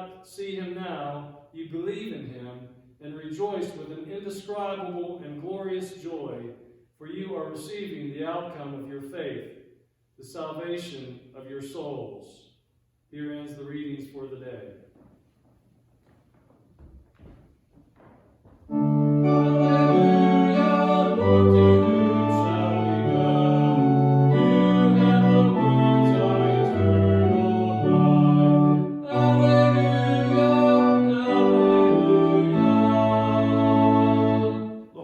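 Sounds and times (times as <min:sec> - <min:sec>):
organ playing slow chords: 0:18.7 - 0:34.9.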